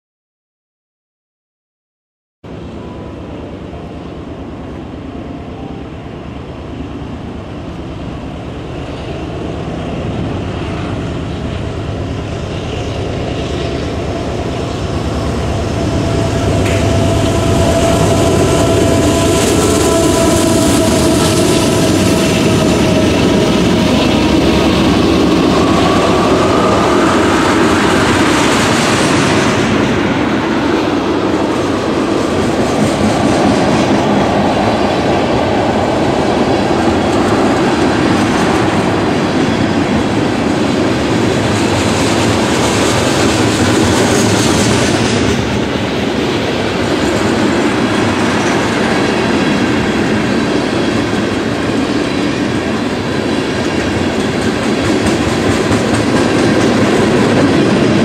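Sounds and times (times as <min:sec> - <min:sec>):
diesel locomotives passing: 0:02.5 - 0:58.0.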